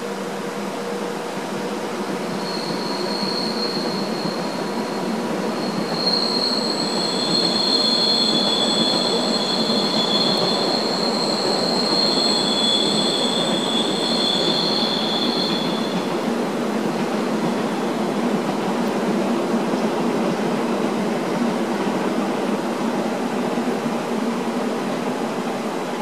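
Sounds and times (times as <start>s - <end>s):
train wheels rumbling on rail: 0.0s - 26.0s
high-pitched wheel squeal: 2.2s - 16.1s.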